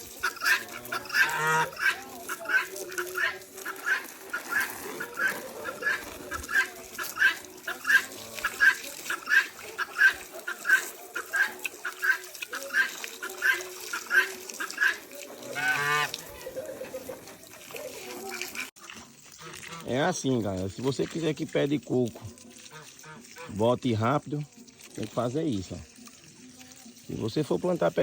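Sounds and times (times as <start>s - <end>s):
farm fowl calling: 0.0s - 17.5s.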